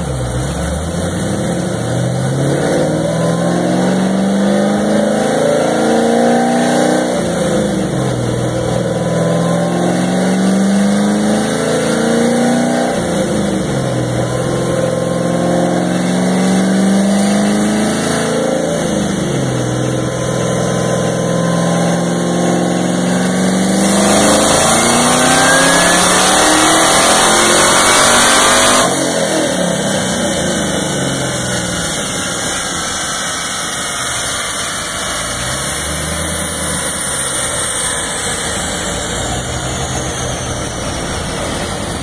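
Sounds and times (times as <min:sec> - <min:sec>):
car engine revving: 0:00.0 - 0:42.0
dyno rollers whine: 0:00.0 - 0:42.0
supercharger whine: 0:00.0 - 0:42.0.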